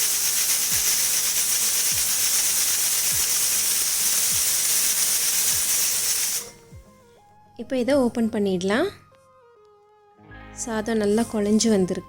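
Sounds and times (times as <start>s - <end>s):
pressure cooker steam hissing: 0.0s - 6.6s.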